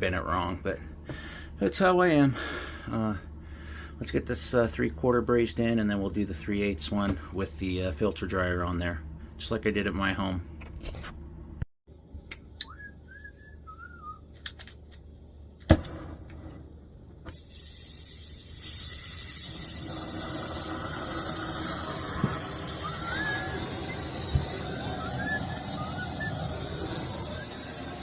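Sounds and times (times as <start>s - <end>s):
torch burning with loud hiss: 17.3s - 28.0s
short chirping whistles: 20.2s - 28.0s.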